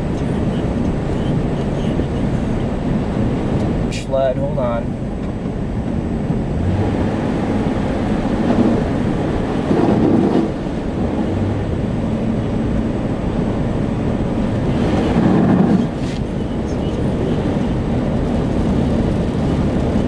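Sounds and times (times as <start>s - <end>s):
tyres rushing through water: 6.3s - 20.0s.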